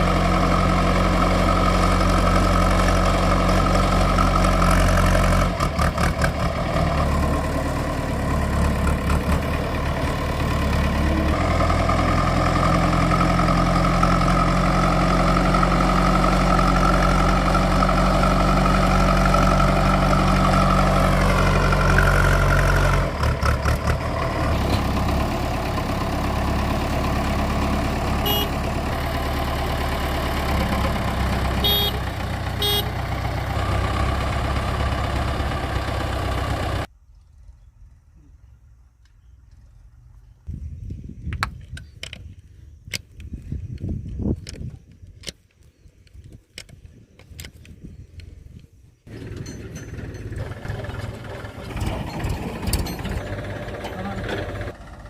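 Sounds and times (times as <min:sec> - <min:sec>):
heavy diesel engine running: 0:00.0 - 0:36.9, 0:49.1 - 0:55.0
short metallic clinks: 0:49.1 - 0:50.6.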